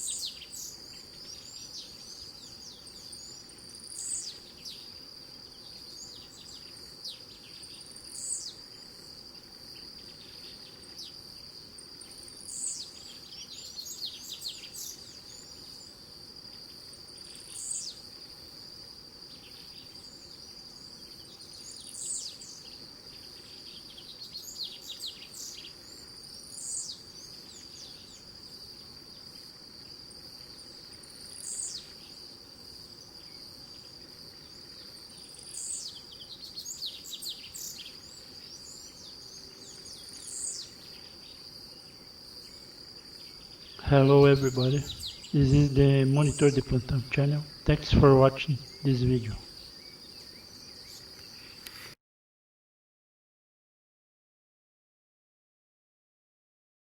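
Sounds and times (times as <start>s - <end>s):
songbird singing: 0.0s - 9.0s, 11.8s - 15.9s, 19.4s - 28.3s, 33.3s - 51.8s.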